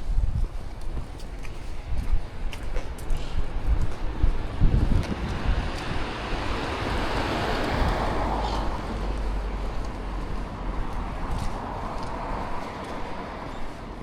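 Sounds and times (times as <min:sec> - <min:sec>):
wind rumble on microphone: 0:00.0 - 0:14.0
passing vehicle road noise: 0:01.7 - 0:14.0.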